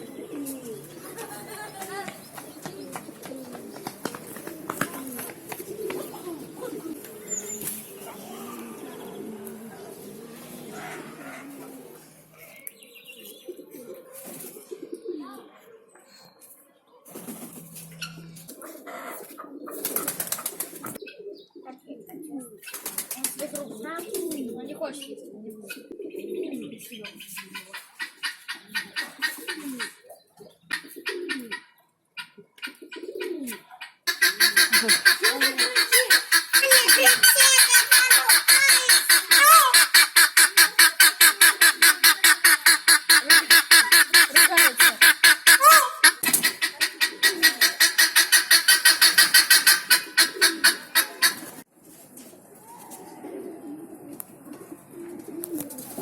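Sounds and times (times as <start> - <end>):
birds chattering rapidly: 0.0 - 51.6
pigeons cooing: 0.0 - 56.0.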